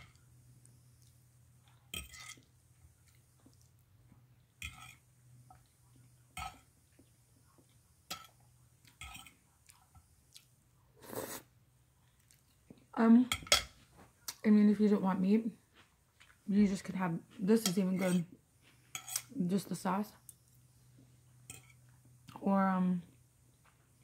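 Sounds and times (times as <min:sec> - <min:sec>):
chewing and smacking: 0:01.0 - 0:03.8, 0:08.8 - 0:10.6, 0:12.0 - 0:12.9.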